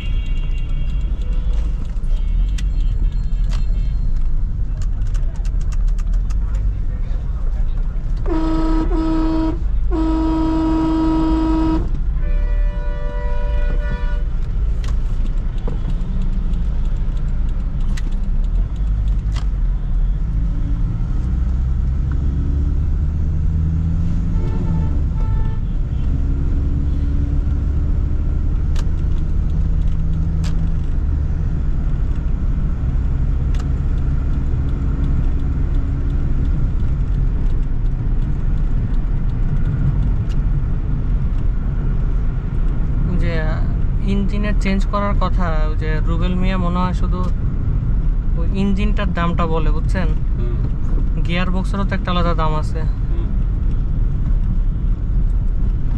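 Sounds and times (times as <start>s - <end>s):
car horn honking: 0.0s - 4.1s, 8.2s - 14.4s, 24.2s - 26.1s
car engine rumbling: 0.0s - 55.9s
road noise: 0.0s - 55.9s
higher-pitched car horn: 8.2s - 14.4s, 24.2s - 26.0s.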